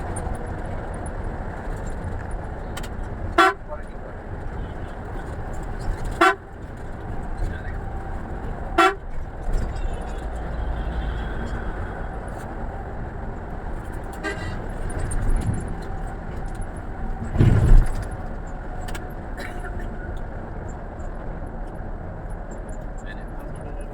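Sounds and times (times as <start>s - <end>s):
vehicle running: 0.0s - 23.9s
vehicle horn toot: 3.3s - 3.8s, 6.0s - 6.6s, 8.7s - 9.2s, 14.2s - 14.6s.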